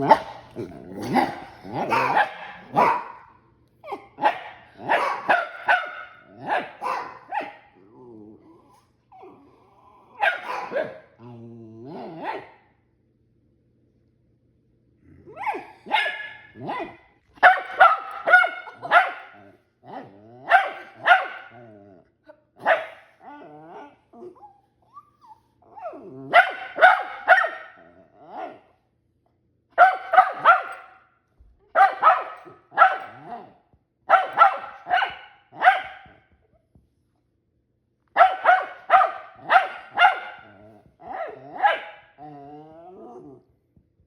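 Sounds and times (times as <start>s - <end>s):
dog barking: 0.0s - 0.4s, 1.1s - 3.3s, 3.9s - 7.7s, 10.2s - 11.1s, 12.2s - 12.6s, 15.4s - 19.5s, 20.5s - 21.6s, 22.6s - 23.1s, 26.3s - 27.8s, 29.8s - 31.1s, 31.7s - 33.4s, 34.1s - 36.2s, 38.2s - 40.5s, 41.2s - 42.1s.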